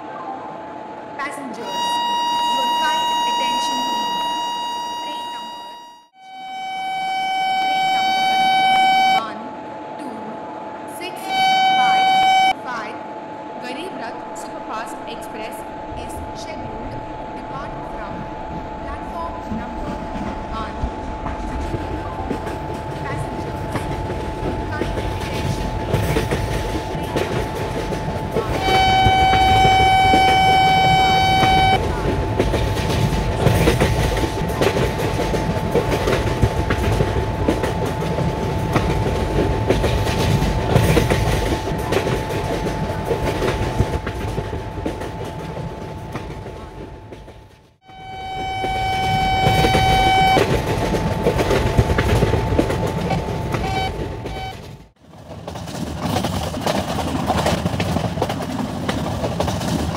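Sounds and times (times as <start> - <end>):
locomotive horn: 1.5 - 9.4, 11.0 - 12.9, 24.7 - 32.2, 47.8 - 54.8
thin whine: 1.6 - 19.6
train wheels clattering on rails: 18.9 - 59.9.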